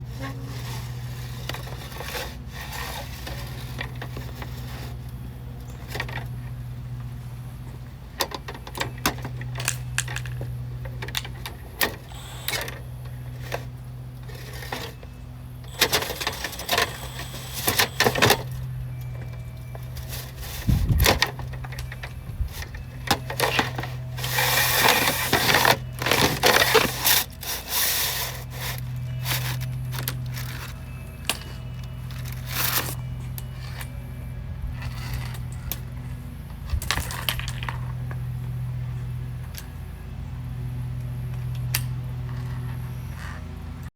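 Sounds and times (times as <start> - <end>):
steady low hum: 0.0 - 43.9
scraping and crinkling: 8.5 - 34.0.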